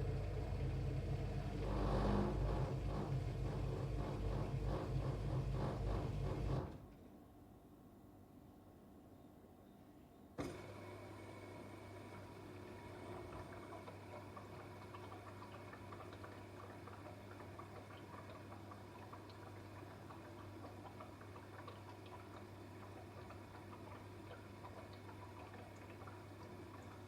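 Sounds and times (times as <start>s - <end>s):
dishwasher humming: 0.0s - 7.0s, 10.4s - 27.0s
water spray ticking and dripping: 13.8s - 27.0s.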